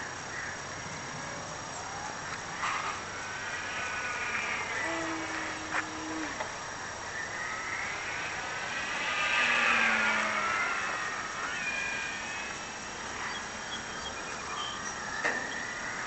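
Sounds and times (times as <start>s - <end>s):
model plane propeller whining: 1.0s - 13.7s.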